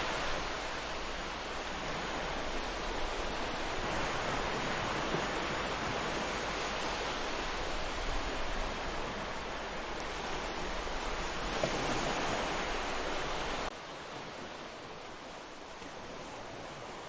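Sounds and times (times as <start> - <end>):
ocean waves breaking: 0.0 - 17.0
wind on microphone: 0.0 - 17.0.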